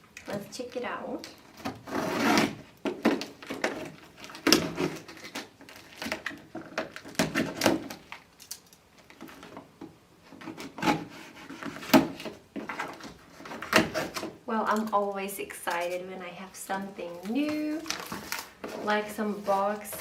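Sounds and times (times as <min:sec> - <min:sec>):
box being unpacked: 0:01.3 - 0:14.4, 0:17.2 - 0:20.0.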